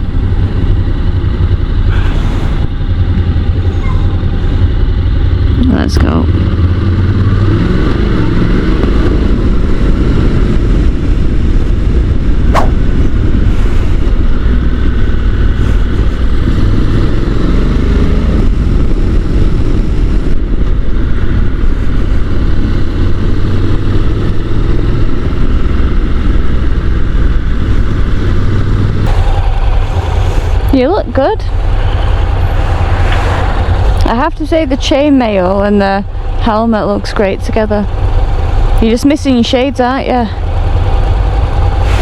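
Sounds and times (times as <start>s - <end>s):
motorcycle engine accelerating: 0.0s - 42.0s
riding wind rush: 0.0s - 42.0s
sharp click: 12.6s - 12.8s.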